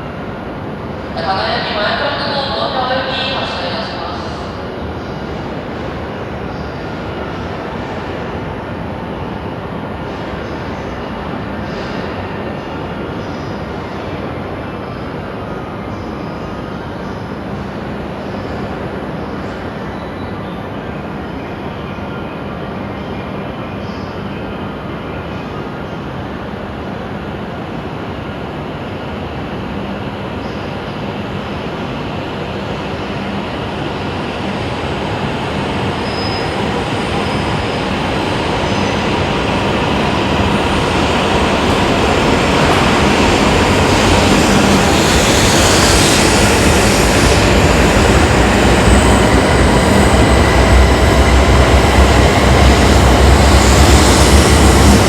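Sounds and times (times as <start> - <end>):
bullet train running: 25.0 - 55.0.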